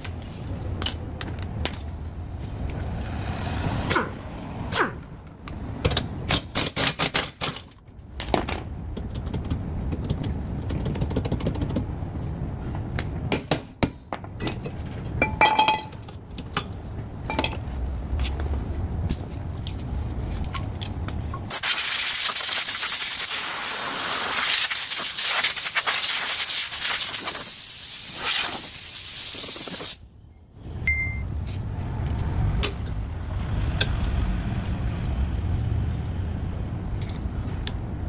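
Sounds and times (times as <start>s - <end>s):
metal tools clinking: 0.8s - 2.0s
loud steady hiss: 21.5s - 30.0s.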